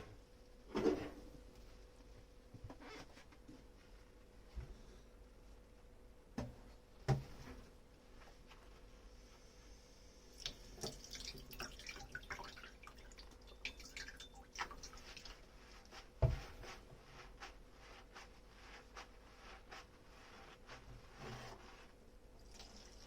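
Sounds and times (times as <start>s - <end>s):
water dripping: 10.4s - 15.4s.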